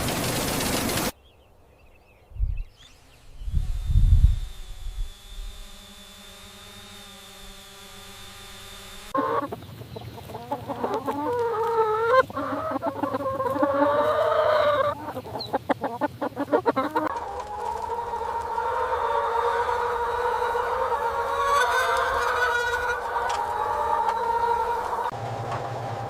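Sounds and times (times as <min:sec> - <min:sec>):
low hum: 0:02.3 - 0:09.2
chickens clucking: 0:09.1 - 0:25.2
rooster crowing: 0:17.2 - 0:25.2.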